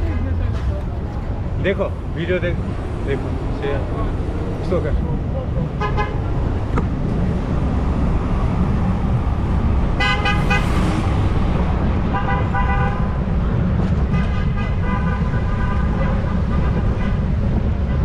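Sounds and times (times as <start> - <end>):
low traffic rumble: 0.0 - 18.0
vehicle horns honking: 5.8 - 6.3, 10.0 - 10.9, 12.1 - 13.2, 14.0 - 18.0.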